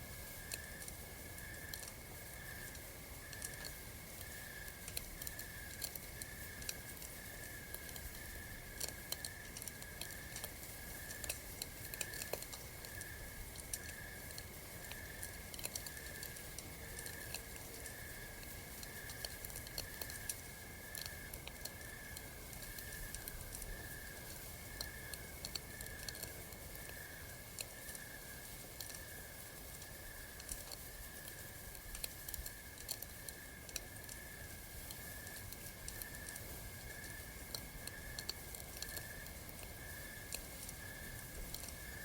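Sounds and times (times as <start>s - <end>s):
campfire crackling: 0.0s - 42.0s
insect chirping: 0.0s - 42.0s.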